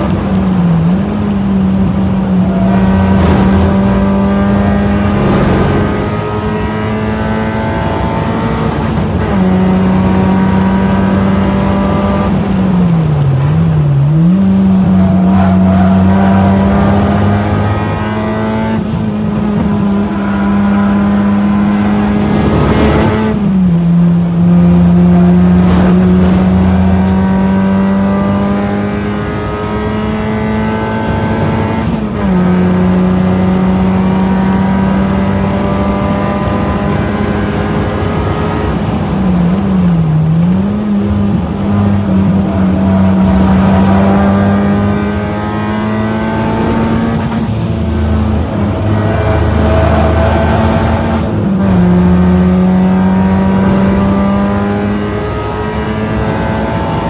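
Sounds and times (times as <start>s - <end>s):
car engine at full throttle: 0.0s - 57.0s.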